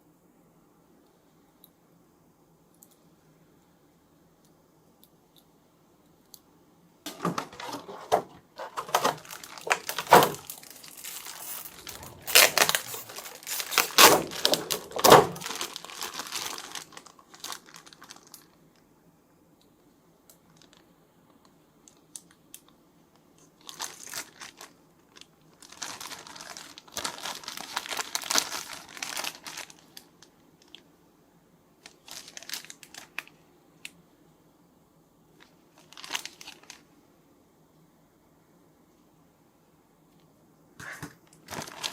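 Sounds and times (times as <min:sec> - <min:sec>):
packaging crinkling and tearing: 0:07.1 - 0:18.8, 0:23.5 - 0:30.8, 0:31.8 - 0:33.4, 0:35.4 - 0:36.8, 0:40.8 - 0:41.9.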